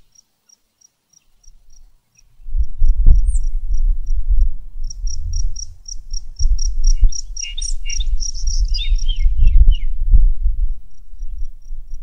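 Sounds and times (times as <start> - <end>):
small birds chirping: 0.0 - 3.7, 4.9 - 10.0.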